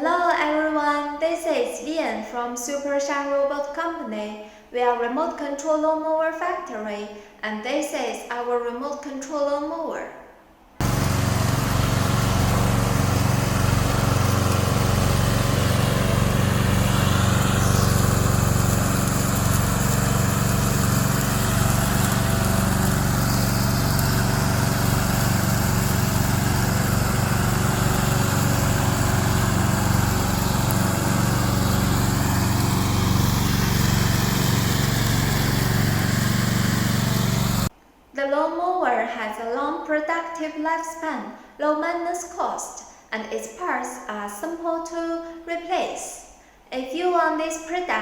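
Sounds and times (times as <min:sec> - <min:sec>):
lawn mower engine running: 0:10.8 - 0:37.7.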